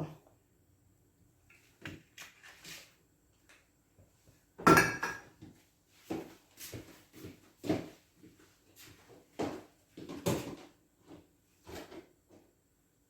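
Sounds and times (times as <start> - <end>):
cookware knocks and clatters: 4.6 - 5.4.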